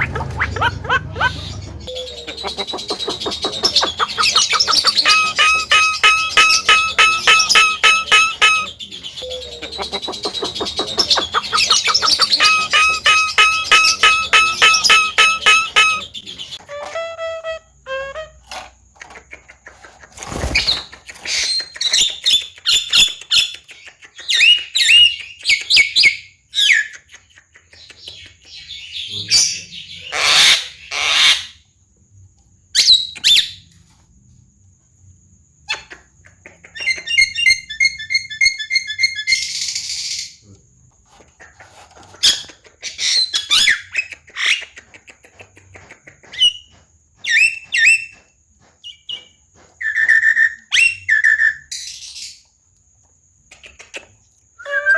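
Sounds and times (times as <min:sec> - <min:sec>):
bird harsh squawk: 0:00.0 - 0:08.8, 0:09.8 - 0:17.2
bird singing chirps and whistles: 0:00.9 - 0:18.2, 0:48.8 - 0:52.4, 0:54.6 - 0:54.9.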